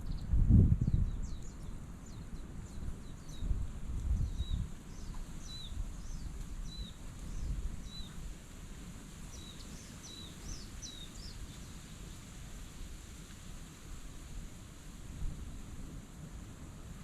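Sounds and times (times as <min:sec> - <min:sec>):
small bird chirping: 0:00.0 - 0:08.2, 0:09.3 - 0:11.8.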